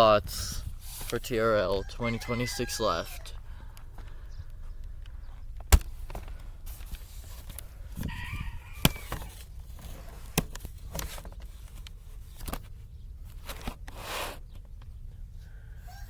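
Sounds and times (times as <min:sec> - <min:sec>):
rooster-like call: 0:01.8 - 0:03.4, 0:08.0 - 0:09.4, 0:15.4 - 0:16.0.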